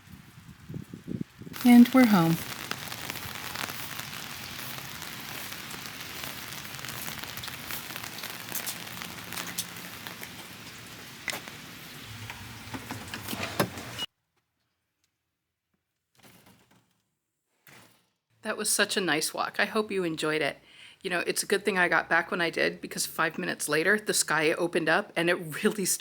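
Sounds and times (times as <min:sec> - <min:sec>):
raindrops ticking: 0:00.0 - 0:13.2
steady rain hiss: 0:00.0 - 0:14.0.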